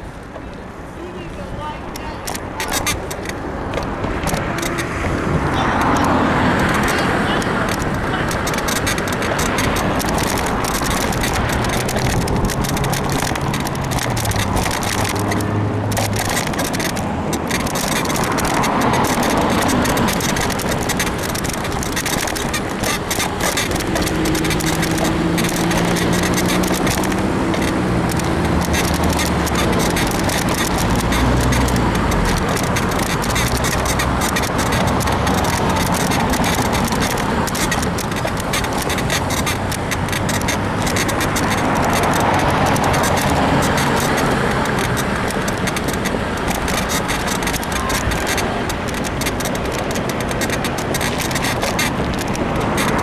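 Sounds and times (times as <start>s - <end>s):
car engines passing: 0.0s - 53.0s
rush of road noise: 0.0s - 53.0s.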